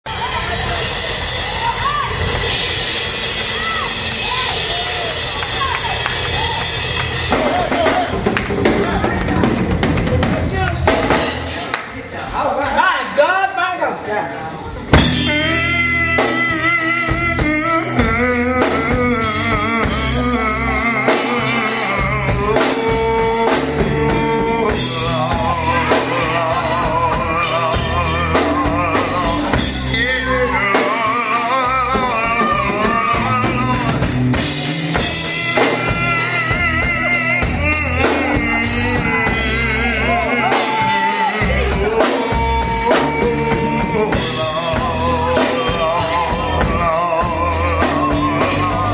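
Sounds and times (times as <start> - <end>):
guitar: 0.0 - 12.4, 14.6 - 48.9
drum kit: 0.0 - 12.5, 14.6 - 48.9
bass: 0.0 - 13.0, 14.6 - 48.9
sustained melody lines: 14.8 - 48.9.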